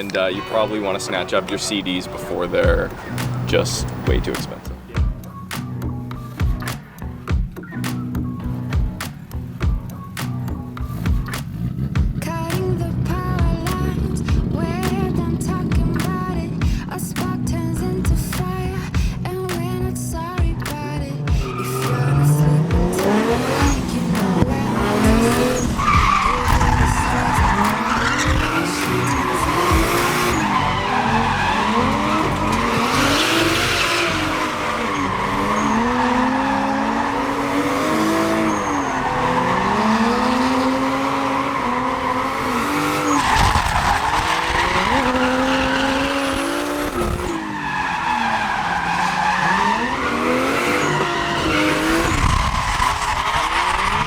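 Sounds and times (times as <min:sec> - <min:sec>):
tyres squealing: 0:00.0 - 0:04.8, 0:23.0 - 0:54.0
car engine revving: 0:00.0 - 0:18.9, 0:19.5 - 0:54.0.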